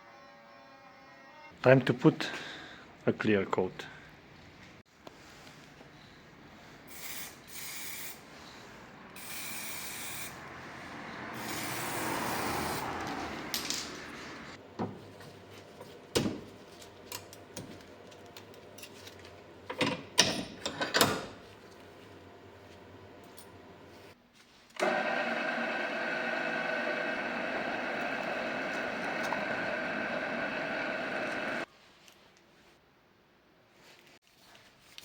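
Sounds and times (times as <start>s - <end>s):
knocks and clatters of parts: 16.0s - 21.4s.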